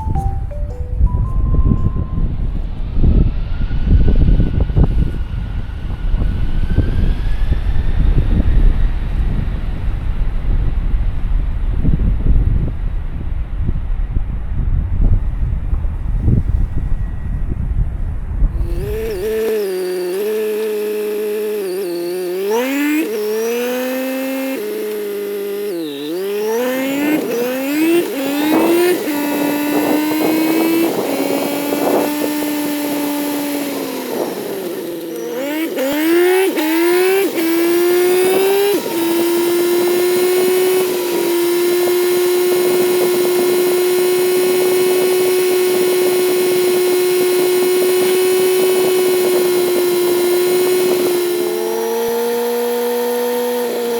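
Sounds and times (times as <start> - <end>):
motorcycle engine pulling through gears: 18.6 - 53.9.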